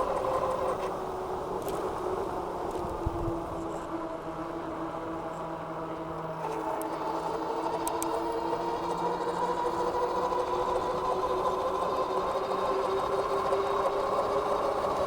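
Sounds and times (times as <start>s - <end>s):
electric motor whining: 4.3s - 15.0s.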